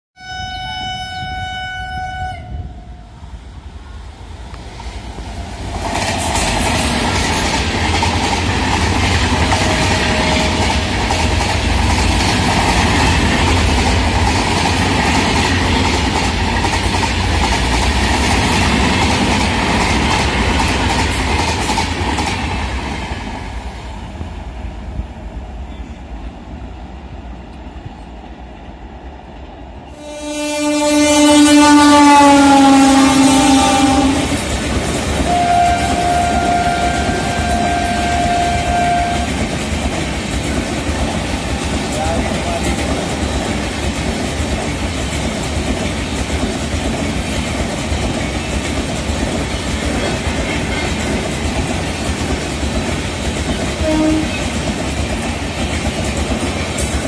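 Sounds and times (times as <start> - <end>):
train horn: 0.2 - 3.1, 9.4 - 11.4, 29.9 - 34.4, 35.2 - 39.4, 53.8 - 54.5
train rushing past: 0.7 - 57.0
rail clatter: 4.6 - 23.4, 33.3 - 57.0.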